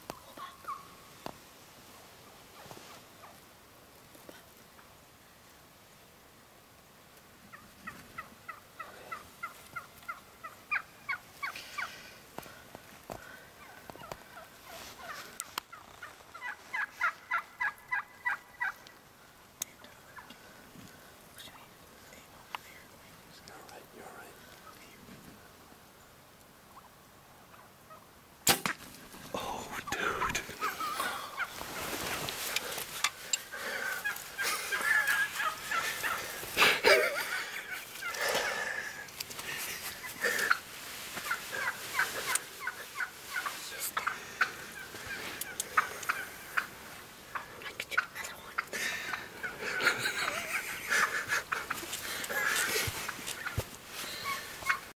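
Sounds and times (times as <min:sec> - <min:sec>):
wild turkey calling: 0:00.0 - 0:01.3, 0:07.1 - 0:28.4, 0:29.2 - 0:54.9
bow shot crack: 0:28.4 - 0:29.1.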